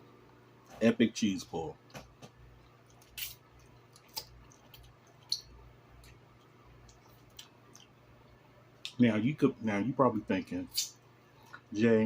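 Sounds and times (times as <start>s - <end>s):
faint low hum: 0.0s - 12.0s
person chewing sandwich: 2.5s - 8.0s
wet mouth clicks and smacks: 2.7s - 8.0s.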